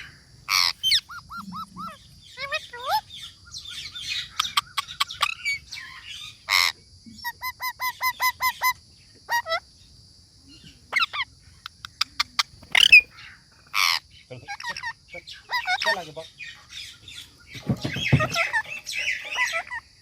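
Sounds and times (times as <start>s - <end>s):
parrot chirping: 12.6s - 13.1s
parrot squawking: 12.6s - 13.1s.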